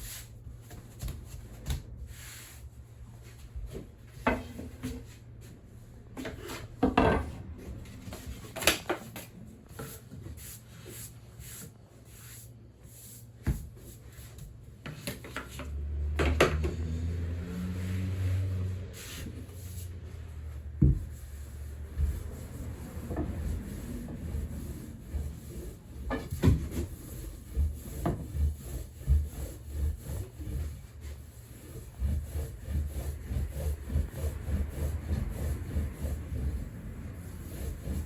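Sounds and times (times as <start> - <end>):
wooden tools rolling over dough: 13.0 - 38.0.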